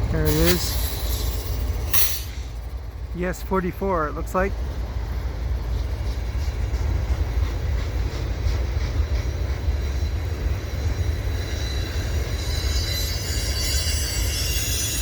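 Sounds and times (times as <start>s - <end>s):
freight train rumbling past: 0.0s - 15.0s
high-pitched wheel squeal: 11.0s - 15.0s.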